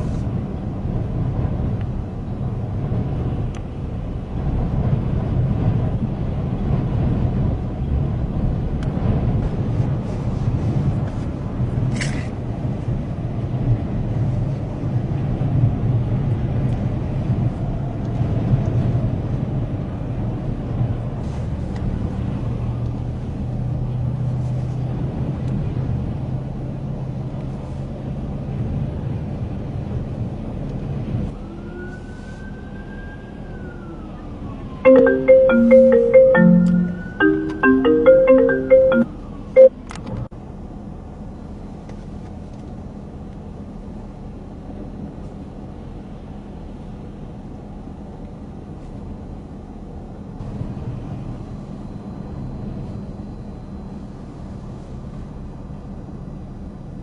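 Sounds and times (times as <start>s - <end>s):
faint rising and falling tone: 34.9s - 39.7s.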